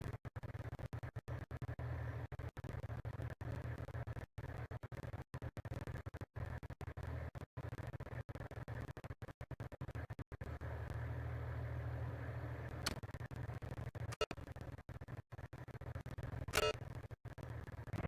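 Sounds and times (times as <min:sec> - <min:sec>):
sharp click: 0:16.5 - 0:16.8.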